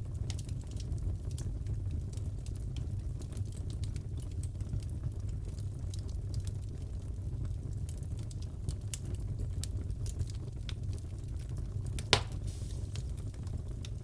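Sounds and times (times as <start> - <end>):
fire rumbling: 0.0 - 14.0
wood fire crackling: 0.0 - 14.0
loud pop from fire: 12.0 - 13.3.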